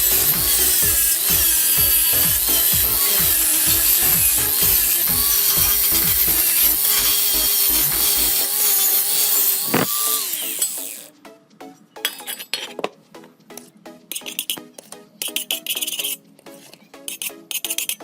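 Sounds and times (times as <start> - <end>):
tool being handled: 0.0 - 11.0, 12.0 - 18.0
power tool grinding: 0.0 - 11.1
background music: 0.0 - 18.0.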